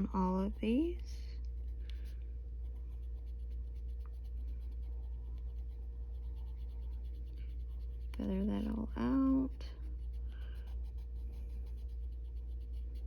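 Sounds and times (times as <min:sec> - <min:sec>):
pencil scratching on paper: 0:00.0 - 0:13.0
steady low hum: 0:00.0 - 0:13.0.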